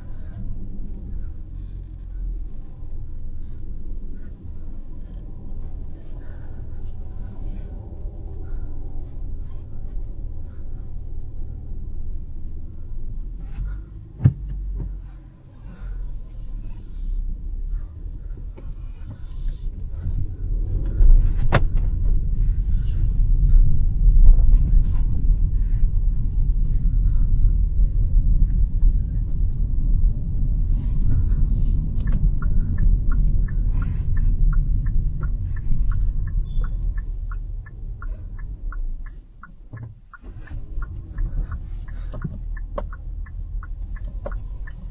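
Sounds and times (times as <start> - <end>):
car engine and road noise: 0.0 - 44.9
regular ticking: 31.2 - 44.9.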